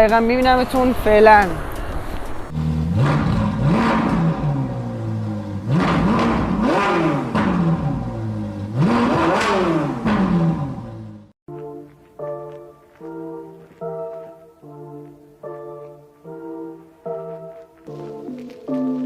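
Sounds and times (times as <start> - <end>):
car engine revving: 2.4 - 11.3.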